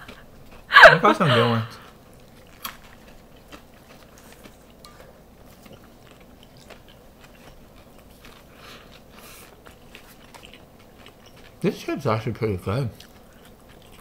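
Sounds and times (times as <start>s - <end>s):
wet chewing with crackles: 0.0s - 0.7s, 1.8s - 14.0s.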